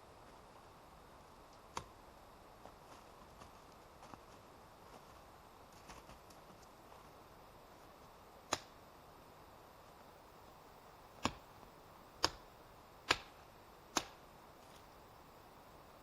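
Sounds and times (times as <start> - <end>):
sharp strikes on wood: 13.0 - 14.2.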